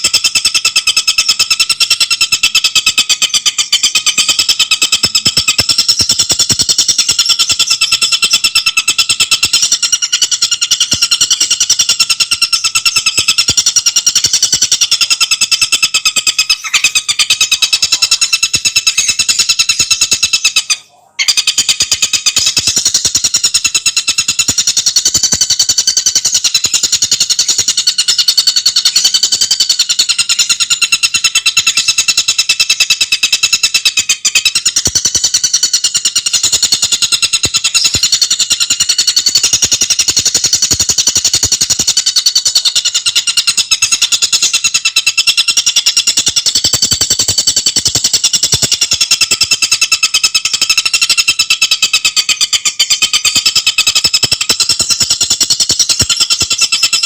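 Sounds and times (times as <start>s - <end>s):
bird rattling trill: 0.0s - 57.0s.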